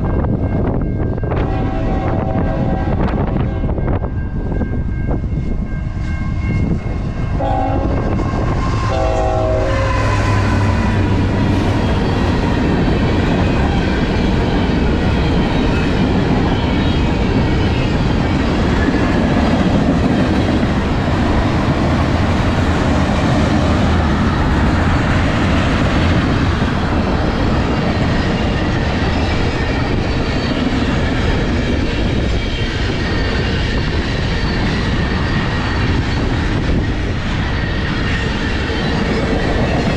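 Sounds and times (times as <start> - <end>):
train passing with rumble: 0.0 - 39.9
train horn blasts: 1.3 - 3.9, 7.4 - 11.2.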